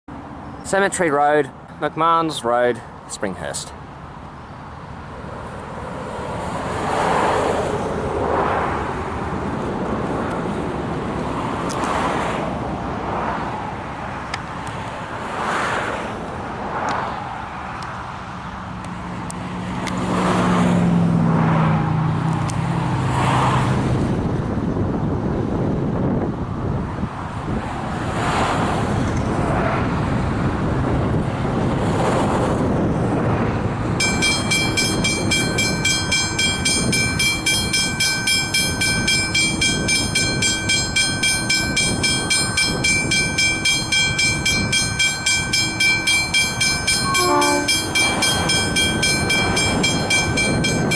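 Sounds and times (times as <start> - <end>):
tyre noise of passing vehicles: 0.1 - 50.9
heavy vehicle engine drone: 32.6 - 50.9.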